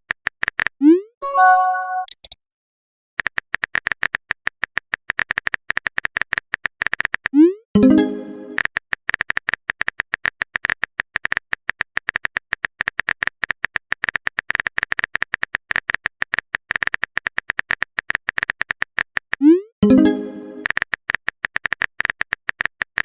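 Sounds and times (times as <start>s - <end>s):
chiming message tone: 1.2s - 2.1s, 7.8s - 8.6s, 19.8s - 20.6s
phone keyboard typing clicks: 1.4s - 2.4s, 3.2s - 7.3s, 8.5s - 19.4s, 20.0s - 23.0s.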